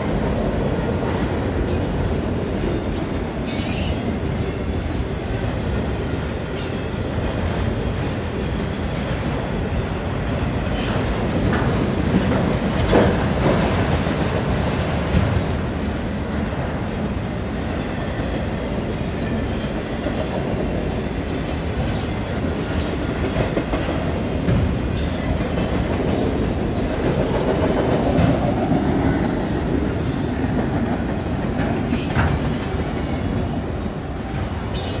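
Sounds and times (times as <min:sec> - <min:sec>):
train wheels rumbling on rails: 0:00.0 - 0:35.0
sharp knocks of rail cars: 0:10.7 - 0:15.7, 0:21.3 - 0:28.9, 0:30.6 - 0:33.5.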